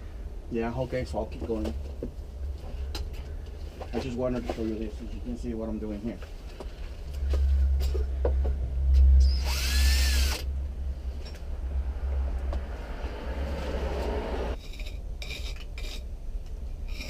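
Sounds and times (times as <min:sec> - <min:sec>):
steady low rumble: 0:00.0 - 0:17.0
power drill driving screw: 0:09.2 - 0:10.5.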